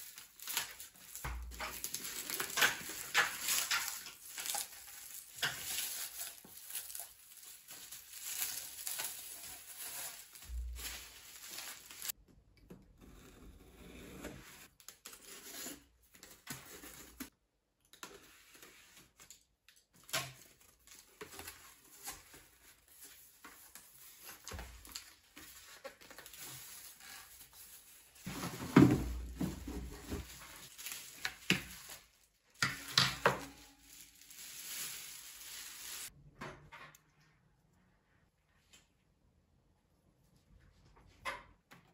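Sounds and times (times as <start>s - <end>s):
rustling: 0.0s - 12.2s, 22.0s - 36.1s.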